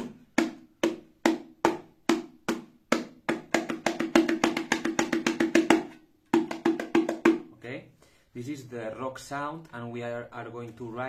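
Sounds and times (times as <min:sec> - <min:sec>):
bongo drum strokes: 0:00.0 - 0:07.5.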